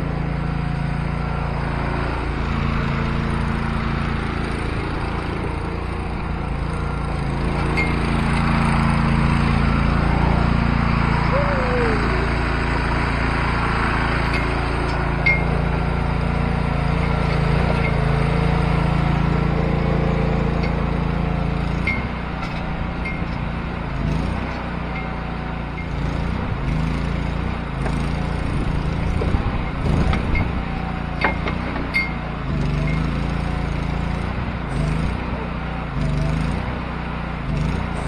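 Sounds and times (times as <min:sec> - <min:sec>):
small engine running: 0:00.0 - 0:38.0.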